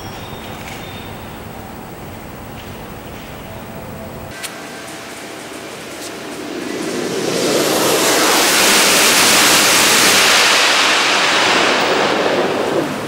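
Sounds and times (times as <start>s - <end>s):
high-speed train passing: 0.0s - 13.0s.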